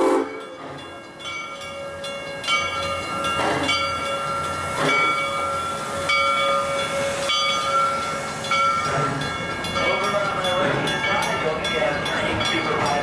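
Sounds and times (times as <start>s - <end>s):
steam hiss: 0.0s - 0.8s, 2.6s - 10.8s
low rumble of train: 0.0s - 13.0s
steam locomotive bell ringing: 0.0s - 13.0s.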